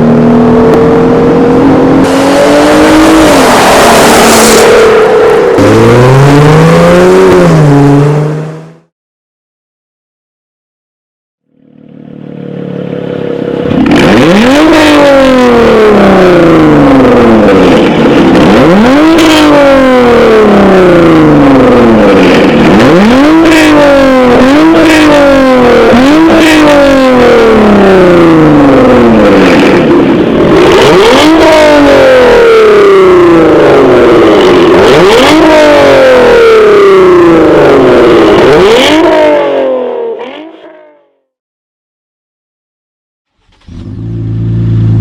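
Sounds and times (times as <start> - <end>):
car engine revving: 0.0 - 8.9, 11.8 - 40.5, 43.4 - 45.0.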